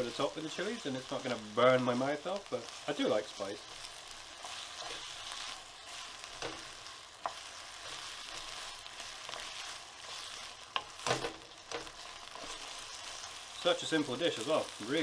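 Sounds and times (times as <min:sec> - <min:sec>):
vegetables sizzling in a pan: 0:00.0 - 0:15.0
utensil clicking against pan: 0:10.7 - 0:13.4.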